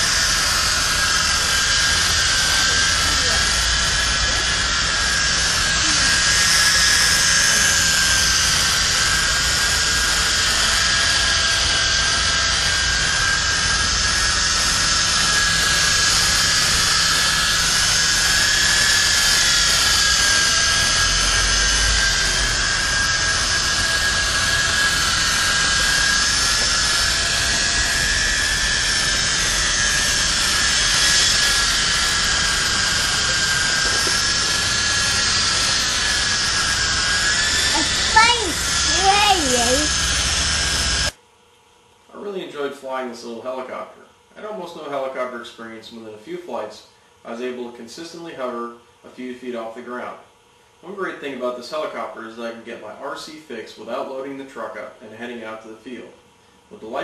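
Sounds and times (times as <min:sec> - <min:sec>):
rc helicopter rotors whining: 0:00.0 - 0:41.2.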